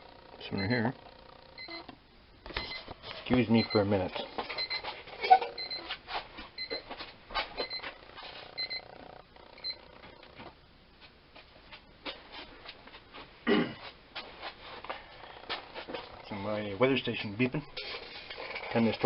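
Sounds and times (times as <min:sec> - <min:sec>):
weather alarm beeping: 0:01.6 - 0:01.9, 0:03.5 - 0:04.0, 0:04.6 - 0:04.9, 0:05.6 - 0:05.9, 0:08.6 - 0:08.9.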